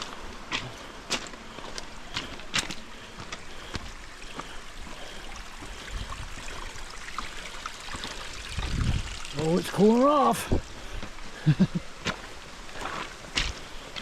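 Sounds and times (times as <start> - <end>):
creek running over rocks: 0.0 - 14.0.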